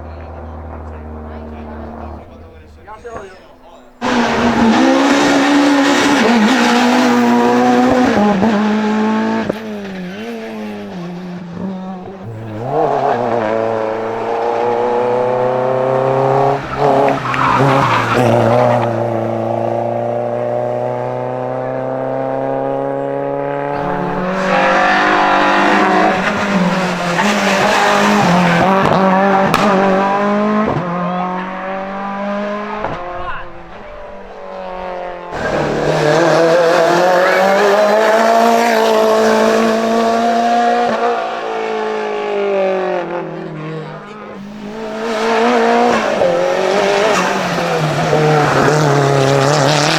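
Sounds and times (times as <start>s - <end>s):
racing car engine revving: 0.0s - 3.3s, 3.9s - 49.9s
tyre squeal: 12.3s - 18.8s, 35.3s - 38.2s.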